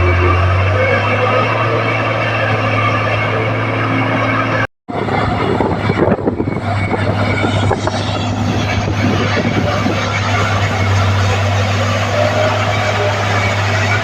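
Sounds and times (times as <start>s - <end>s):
bulldozer diesel engine droning: 0.0s - 14.0s.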